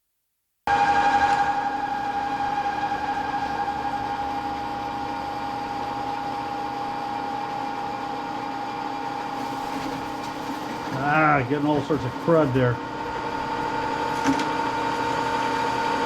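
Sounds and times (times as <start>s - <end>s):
metal lathe whine and hum: 0.7s - 9.8s, 10.9s - 16.0s.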